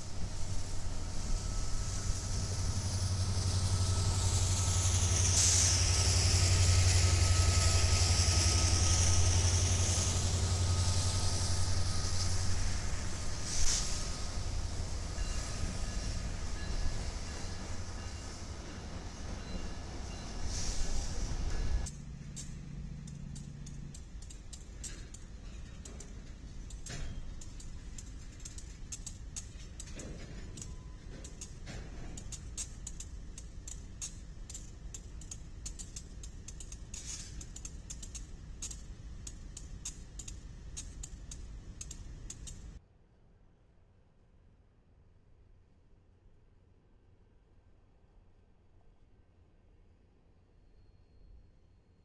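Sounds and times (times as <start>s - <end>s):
train rushing hiss: 0.0s - 21.9s, 36.8s - 38.1s
diesel locomotive engines rumbling: 0.0s - 42.8s
wheels clicking over rail joints: 0.0s - 42.8s.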